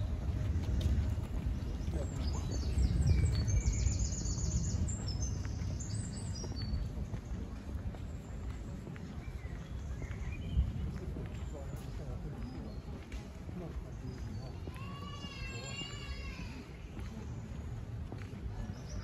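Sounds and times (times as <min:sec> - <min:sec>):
low outdoor rumble: 0:00.0 - 0:12.4.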